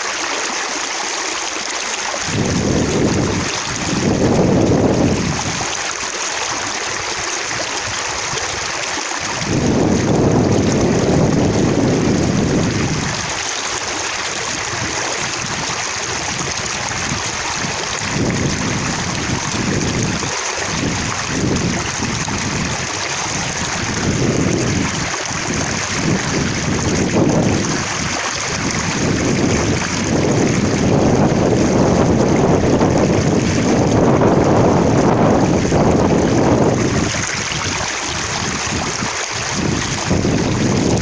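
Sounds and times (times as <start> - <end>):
water splashing: 0.0 - 41.0.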